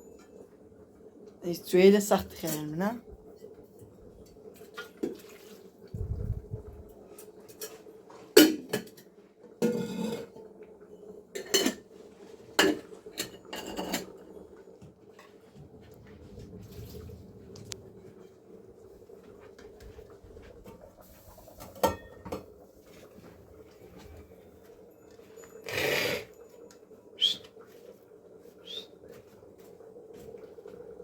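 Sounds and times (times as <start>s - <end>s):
dishes and utensils clattering: 8.4s - 10.4s, 11.4s - 11.9s, 12.6s - 14.4s, 21.6s - 22.5s.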